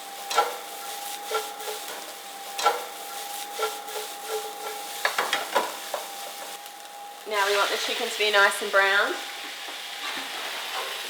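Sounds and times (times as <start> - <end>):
utensil scraping a frying pan: 0.2 - 6.6.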